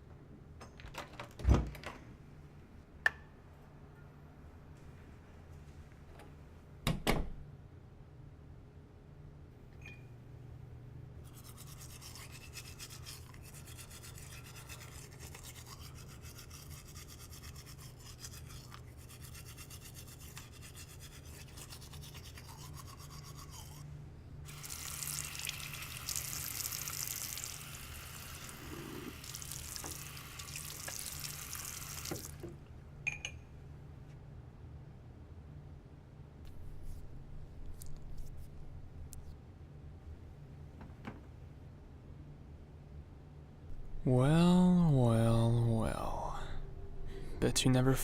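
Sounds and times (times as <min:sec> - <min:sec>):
low steady hum: 0:00.0 - 0:48.0
rapid brushing strokes: 0:11.3 - 0:23.8
running water hiss: 0:24.5 - 0:32.4.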